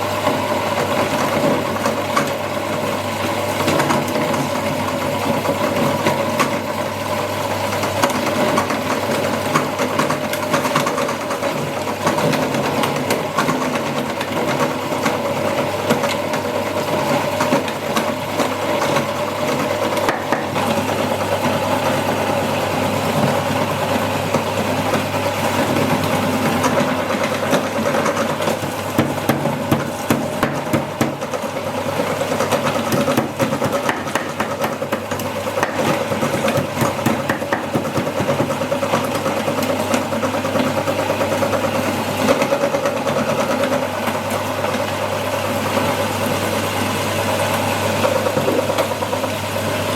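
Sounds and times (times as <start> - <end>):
electric meat grinder motor hum: 0.0 - 49.9.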